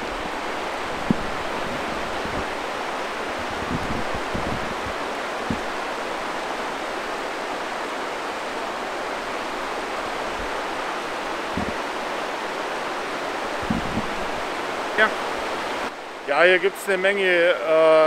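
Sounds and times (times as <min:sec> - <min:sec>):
river water rushing: 0:00.0 - 0:18.0
soft low thumps: 0:01.0 - 0:02.5.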